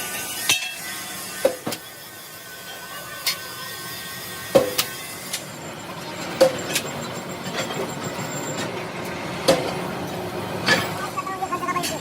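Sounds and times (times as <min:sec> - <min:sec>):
workshop noise: 0:00.2 - 0:12.0.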